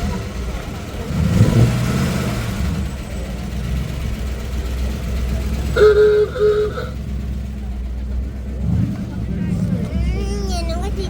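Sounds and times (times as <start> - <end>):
car engine running: 0.0 - 11.0
short car horn beeps: 5.6 - 7.2.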